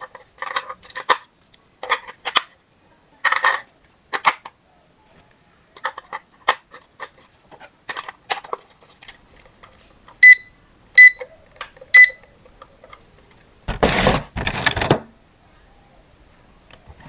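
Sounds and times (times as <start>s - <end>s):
short electronic beeps: 10.2s - 11.3s, 12.0s - 12.3s
rustling noise: 12.8s - 15.0s.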